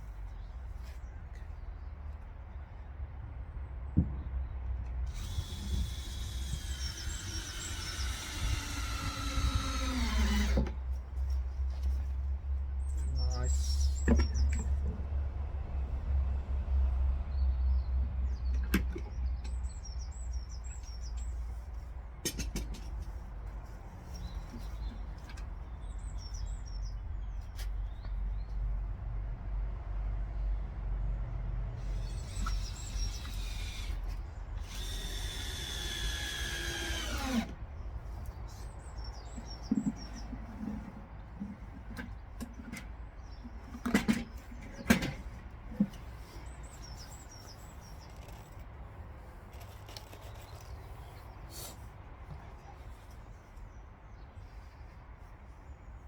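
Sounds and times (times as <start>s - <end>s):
power drill drilling into wood: 5.1s - 10.8s, 31.9s - 34.0s, 34.6s - 37.6s
birds chirping: 5.2s - 10.6s, 12.8s - 15.0s, 24.0s - 28.6s, 31.8s - 44.9s, 45.8s - 48.6s.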